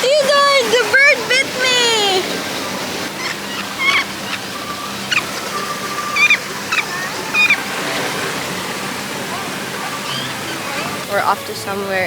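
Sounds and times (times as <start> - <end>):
birds chirping: 0.0 - 12.0
thin steady bird whistles: 3.2 - 7.7.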